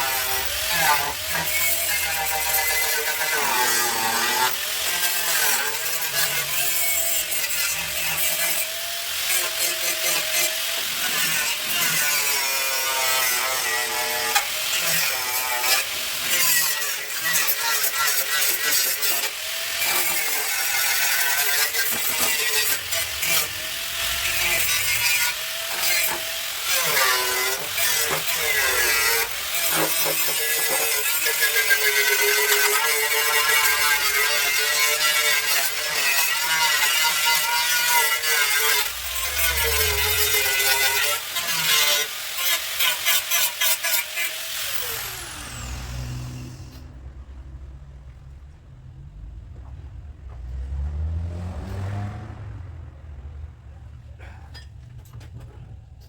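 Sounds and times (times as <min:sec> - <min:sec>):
power tool on car bodywork: 0:00.0 - 0:47.1
low hum: 0:45.4 - 0:56.0.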